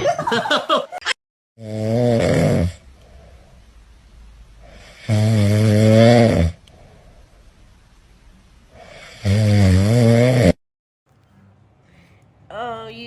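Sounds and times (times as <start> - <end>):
pet snoring loudly: 1.6 - 2.8, 4.6 - 6.6, 8.8 - 10.6.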